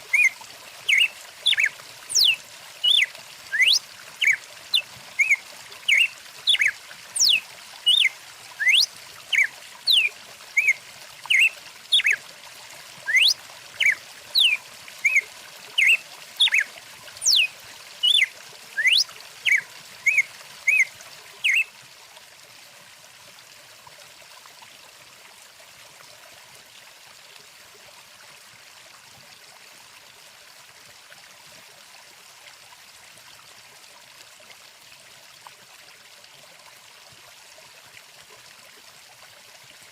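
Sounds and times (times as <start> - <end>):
stream flowing: 0.0 - 39.9
songbird chirping and whistling: 0.1 - 0.3, 0.9 - 4.4, 5.2 - 12.2, 13.1 - 15.2, 15.8 - 16.6, 17.2 - 21.6.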